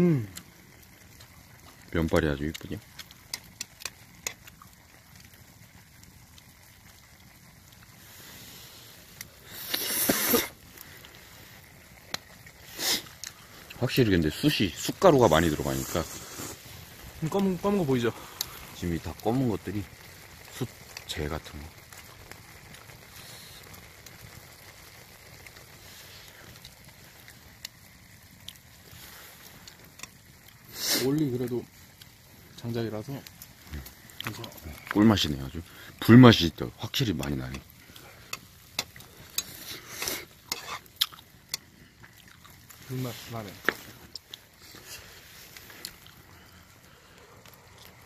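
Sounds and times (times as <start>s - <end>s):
wood fire crackling: 0.0s - 48.0s
person slurping noodles: 9.5s - 10.6s, 12.7s - 13.1s
sharp pops: 9.5s - 10.8s, 37.5s - 44.4s.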